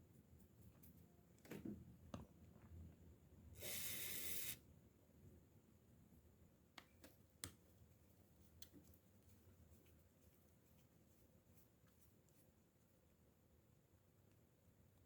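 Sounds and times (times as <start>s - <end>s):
aerosol can spraying: 3.6s - 4.6s.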